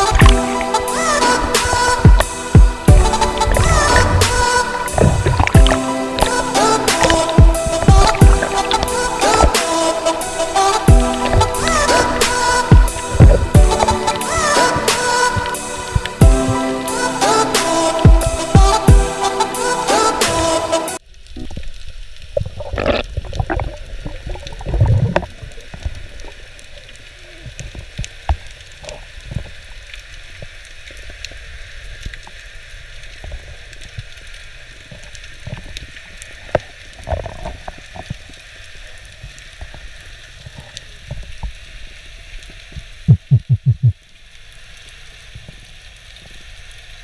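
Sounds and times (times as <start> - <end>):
steady underwater hiss: 0.0 - 43.1, 43.9 - 47.0
gurgling water: 0.0 - 47.0
low underwater thumps: 0.1 - 0.7, 1.6 - 9.8, 10.9 - 16.6, 18.0 - 19.1, 43.1 - 44.0.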